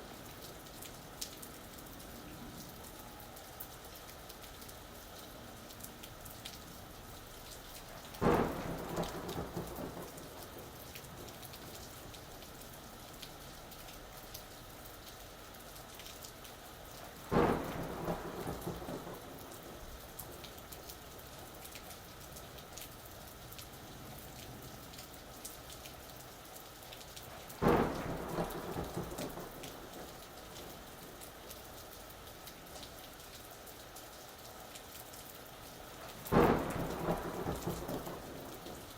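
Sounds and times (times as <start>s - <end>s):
steady rain falling: 0.0s - 38.9s
thunder claps rumbling: 8.2s - 11.4s, 17.3s - 20.4s, 27.6s - 31.2s, 36.3s - 38.9s.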